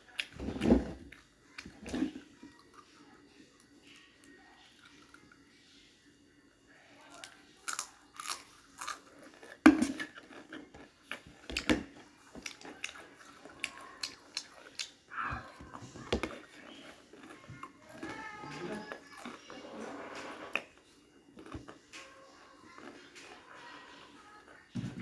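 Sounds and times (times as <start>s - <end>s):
crunchy chips being chewed: 7.1s - 24.7s.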